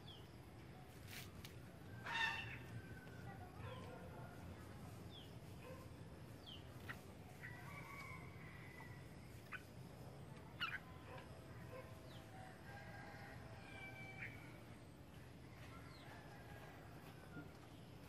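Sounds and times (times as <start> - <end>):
faint bird calls: 1.9 - 4.1, 10.5 - 11.9.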